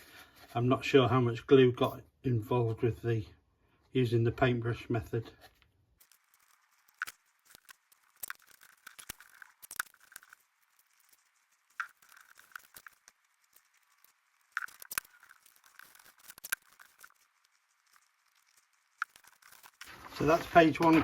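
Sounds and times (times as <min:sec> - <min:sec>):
scratchy rustling: 0:05.4 - 0:21.0.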